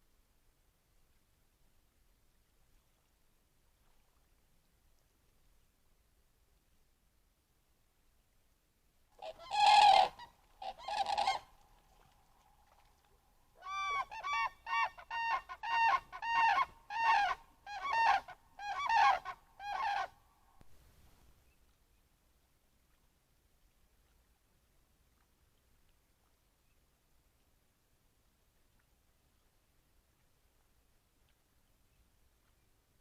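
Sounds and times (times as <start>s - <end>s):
large waterbirds calling: 9.2s - 12.1s, 13.6s - 20.2s.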